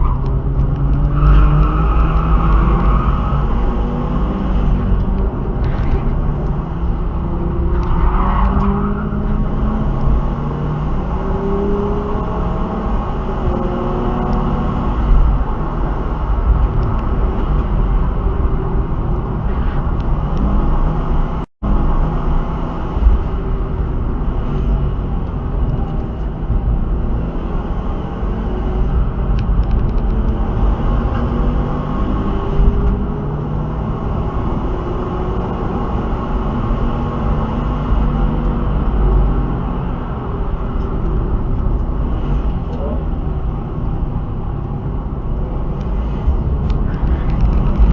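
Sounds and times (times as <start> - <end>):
car engine revving: 0.0 - 47.9
heavy low rumble: 2.2 - 11.1, 38.0 - 47.9.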